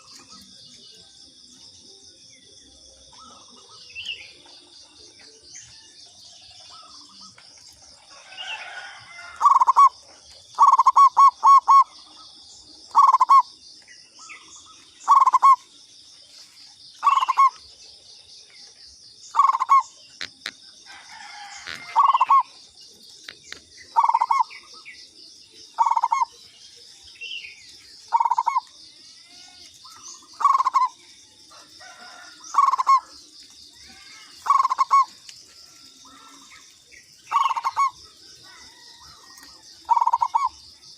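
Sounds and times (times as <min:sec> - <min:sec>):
dove cooing: 0:08.2 - 0:12.3, 0:12.9 - 0:13.6, 0:15.0 - 0:15.7, 0:17.0 - 0:17.6, 0:19.3 - 0:20.3, 0:20.9 - 0:22.6, 0:23.8 - 0:24.9, 0:25.7 - 0:26.4, 0:28.0 - 0:40.6
high insect buzz: 0:27.4 - 0:40.9.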